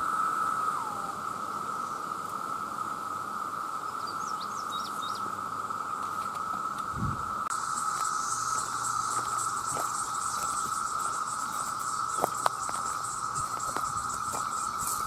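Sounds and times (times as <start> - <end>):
cicadas droning: 0.0 - 15.0
rapidly pulsing insect call: 0.0 - 15.0
short insect chirps: 0.0 - 15.0.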